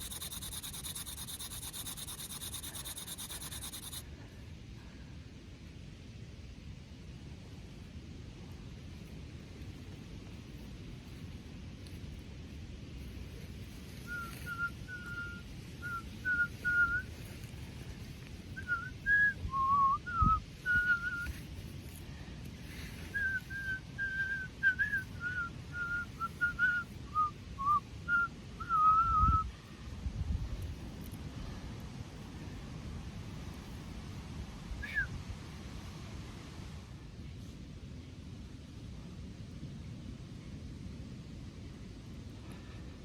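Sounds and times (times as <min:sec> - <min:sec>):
person whistling a slow tune: 0:14.1 - 0:17.1, 0:18.6 - 0:21.3, 0:23.1 - 0:29.5, 0:34.8 - 0:35.1.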